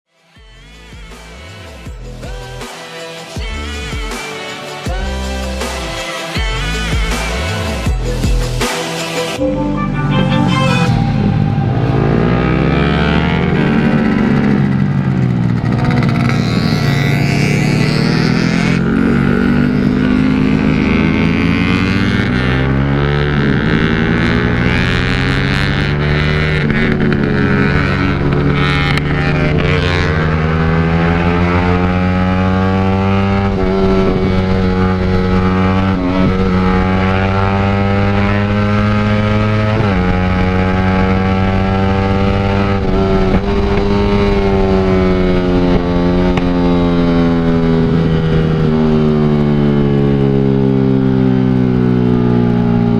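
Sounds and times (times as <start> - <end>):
motorcycle engine accelerating: 9.4 - 52.9
wind noise: 33.5 - 36.9, 39.9 - 51.0.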